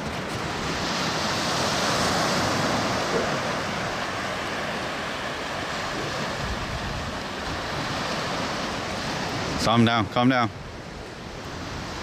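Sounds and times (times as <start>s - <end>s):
wind on microphone: 0.0s - 9.9s, 10.5s - 12.0s
sea surf washing onto beach: 0.0s - 12.0s.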